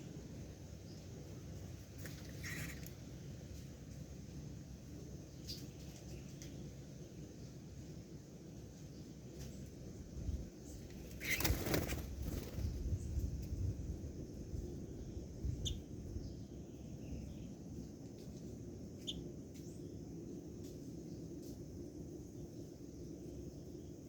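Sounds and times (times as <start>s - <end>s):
birds chirping: 2.1s - 3.0s, 10.6s - 13.2s.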